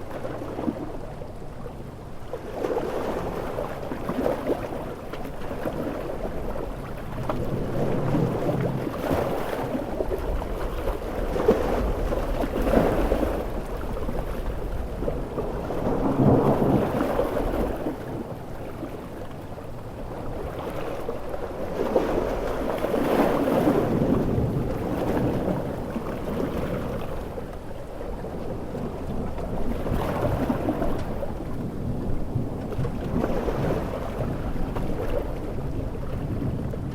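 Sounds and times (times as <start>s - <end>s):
sea waves: 0.0s - 36.9s
low rumbling thunder: 7.4s - 19.1s, 23.5s - 27.4s, 28.2s - 36.9s.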